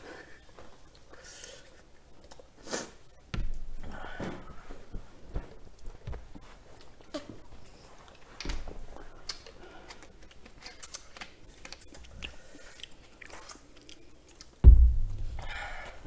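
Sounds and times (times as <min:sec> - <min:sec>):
people chewing: 0:00.0 - 0:04.1, 0:06.6 - 0:14.6
heavy low thump: 0:14.6 - 0:15.8.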